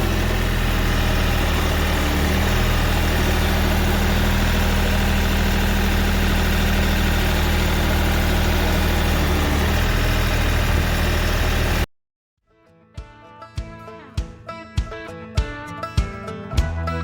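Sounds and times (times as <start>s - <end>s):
tractor diesel engine running: 0.0s - 11.9s.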